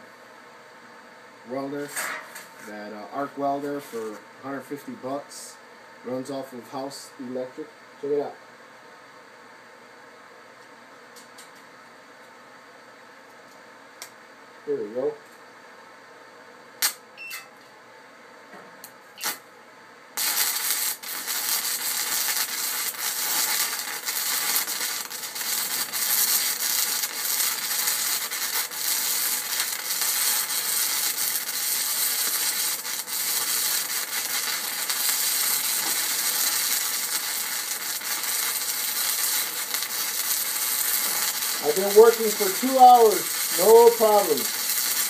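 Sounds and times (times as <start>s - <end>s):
welding arc crackling sizzle: 1.5s - 8.3s, 16.8s - 17.1s, 19.2s - 19.5s, 20.1s - 45.0s.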